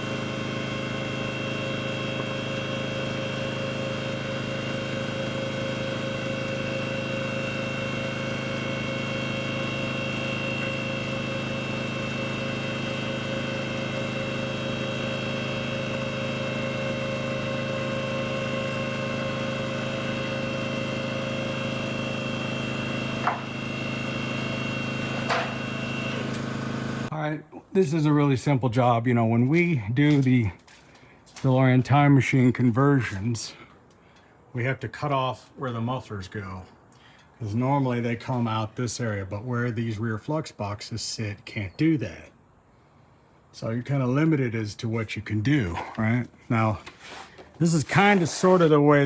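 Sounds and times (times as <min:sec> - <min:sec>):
engine running steadily: 0:00.0 - 0:27.1.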